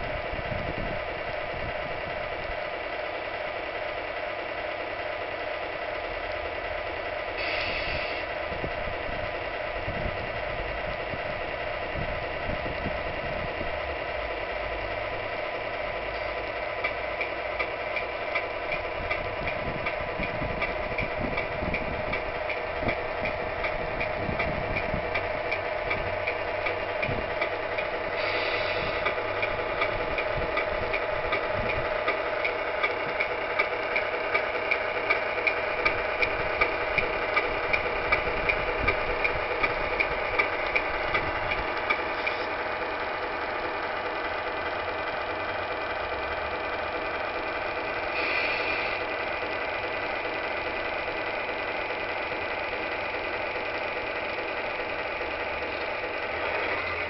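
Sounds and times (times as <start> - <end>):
diesel engine idling: 0.0 - 57.0
regular ticks: 16.8 - 28.0, 29.0 - 45.3.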